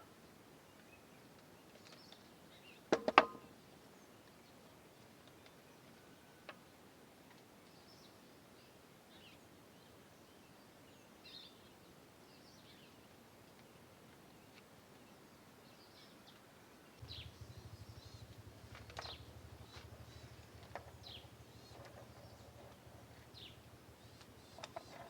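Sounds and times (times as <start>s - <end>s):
faint bird chirps: 14.4s - 25.0s.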